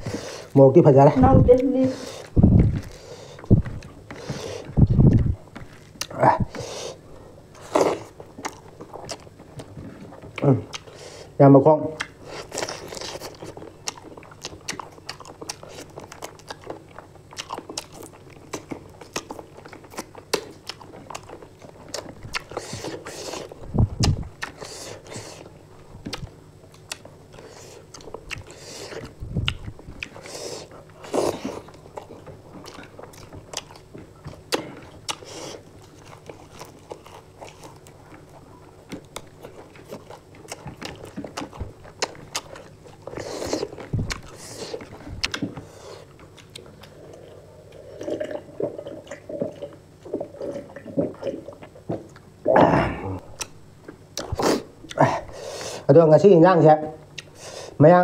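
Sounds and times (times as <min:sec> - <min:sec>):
wet chewing and mouth smacks: 0:07.8 - 0:11.0, 0:12.0 - 0:52.3, 0:53.3 - 0:55.0, 0:57.1 - 0:57.4.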